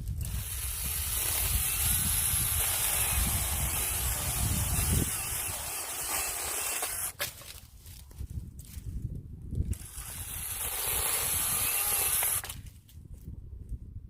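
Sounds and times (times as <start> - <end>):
electric mini chainsaw whirring: 0.0 - 7.2, 9.7 - 12.6.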